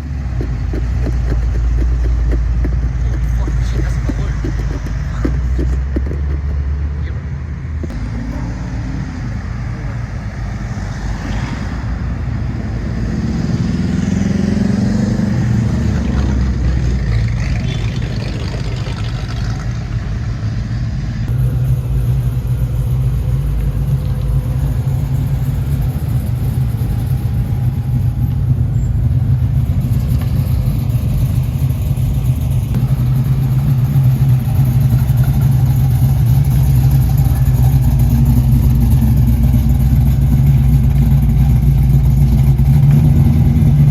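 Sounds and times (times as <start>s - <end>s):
car engine running: 0.0s - 43.9s.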